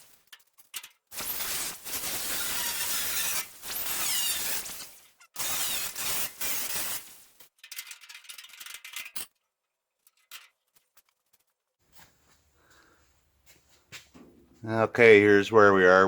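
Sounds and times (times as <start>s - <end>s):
metallic clinks and scraping: 0.0s - 11.6s
cut-off wheel grinding steel: 1.1s - 7.4s.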